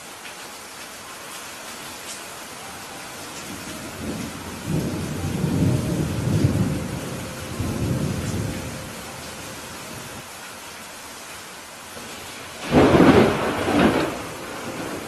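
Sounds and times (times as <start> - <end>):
rain hissing: 0.0 - 15.0
rolling thunder: 3.4 - 10.2, 12.6 - 15.0.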